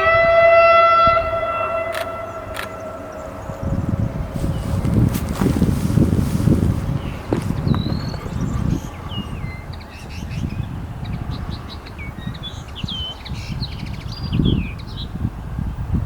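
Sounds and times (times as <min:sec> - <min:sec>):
gusty wind on microphone: 0:00.0 - 0:16.0
songbirds singing: 0:02.0 - 0:05.5, 0:06.5 - 0:15.2.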